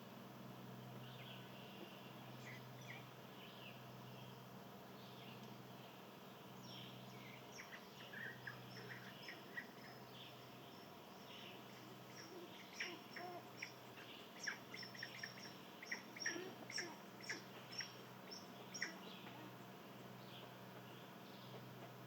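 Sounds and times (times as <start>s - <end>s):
low steady hum: 0.0s - 22.0s
small birds chirping: 0.7s - 22.0s.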